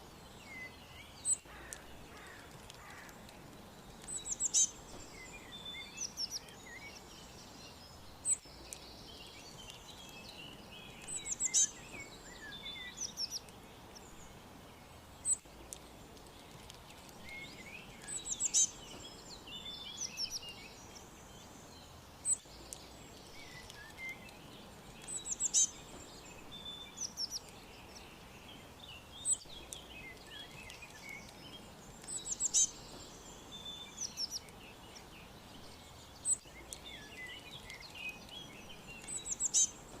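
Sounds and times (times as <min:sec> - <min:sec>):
faint steady hiss: 0:00.0 - 0:40.0
songbirds chirping: 0:00.0 - 0:40.0.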